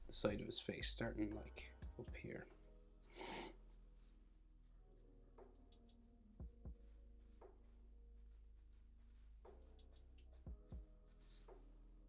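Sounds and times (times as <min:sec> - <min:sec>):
pencil scratching on paper: 0:03.2 - 0:12.0.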